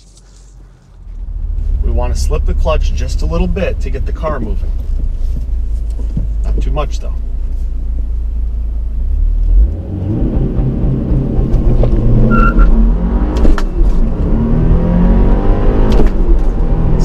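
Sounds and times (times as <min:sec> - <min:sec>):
car engine accelerating hard: 0:09.0 - 0:17.0.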